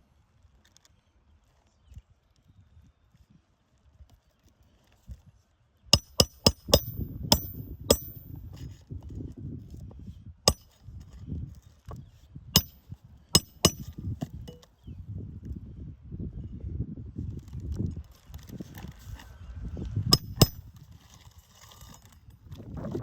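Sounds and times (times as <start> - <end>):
hammer striking nails: 6.0 - 8.3, 10.5 - 10.7, 12.6 - 12.8, 13.4 - 14.6, 20.2 - 20.6.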